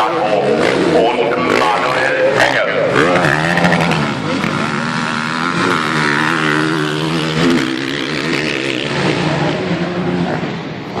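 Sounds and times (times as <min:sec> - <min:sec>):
motorcycle engines droning: 0:00.0 - 0:11.0.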